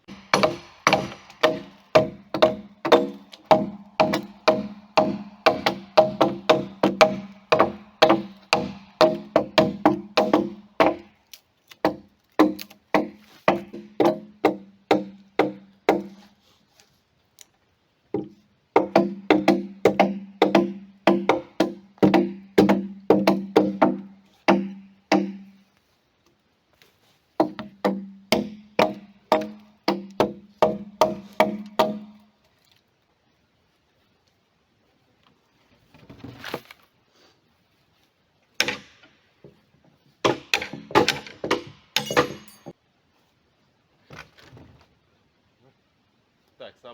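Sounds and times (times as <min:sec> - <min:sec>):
hammer blows on timber: 0:00.0 - 0:11.1.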